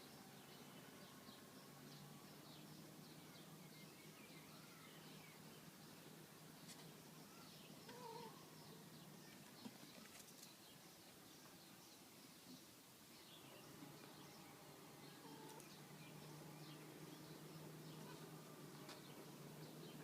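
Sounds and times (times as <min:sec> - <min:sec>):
small birds chirping: 0:00.0 - 0:20.0
faint cat mew: 0:07.9 - 0:08.4.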